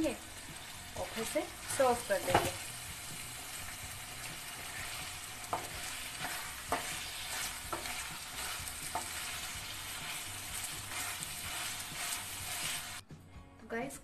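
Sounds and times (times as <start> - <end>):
meat sizzling in a pan: 0.0 - 13.0
spatula stirring and scraping: 0.0 - 13.0
spatula knocking against pan: 5.4 - 9.3.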